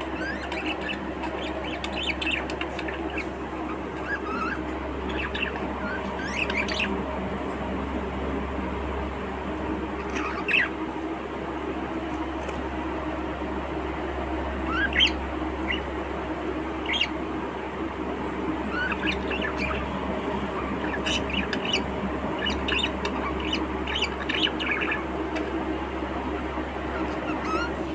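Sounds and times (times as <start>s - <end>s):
budgerigars chirping and squawking: 0.0s - 7.0s, 10.0s - 10.8s, 14.6s - 15.9s, 16.8s - 17.3s, 18.4s - 25.6s, 26.2s - 27.9s.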